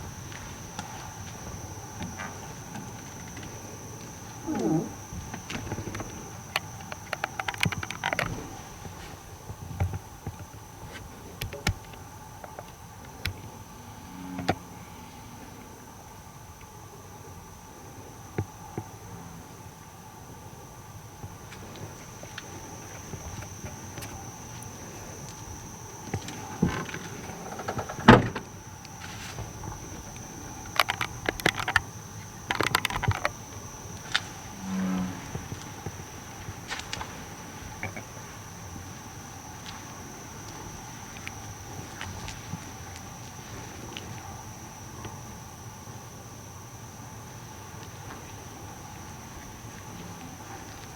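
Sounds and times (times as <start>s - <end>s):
low frog croak: 0.0s - 9.1s, 13.6s - 15.5s, 22.1s - 39.7s
insect trilling: 0.0s - 9.4s, 13.3s - 15.5s, 21.7s - 46.6s
sharp clicks and knocks: 5.3s - 8.5s, 32.5s - 33.4s.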